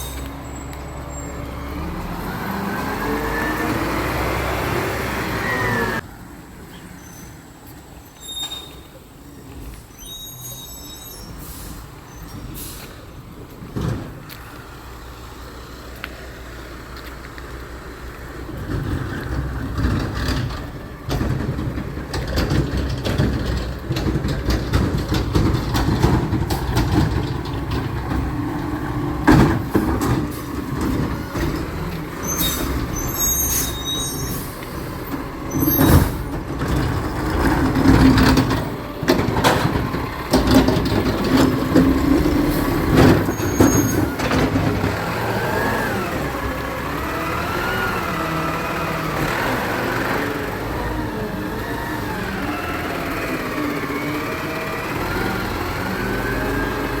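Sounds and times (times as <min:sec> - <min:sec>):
truck engine running: 0:13.1 - 0:57.0.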